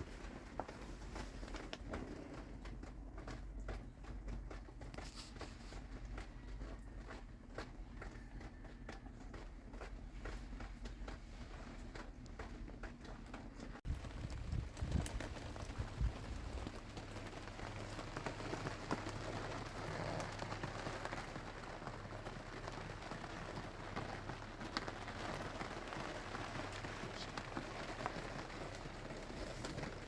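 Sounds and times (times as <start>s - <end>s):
rain falling: 13.8s - 30.0s.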